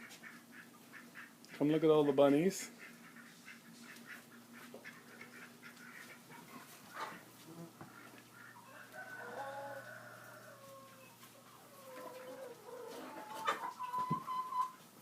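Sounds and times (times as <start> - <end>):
rooster crowing: 8.6 - 13.4.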